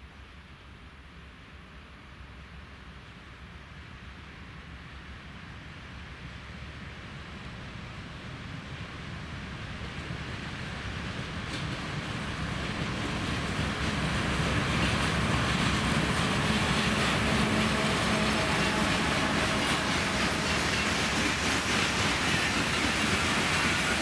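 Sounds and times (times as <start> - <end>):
train passing on rails: 0.3 - 24.0
wheels rumbling over track: 7.1 - 24.0.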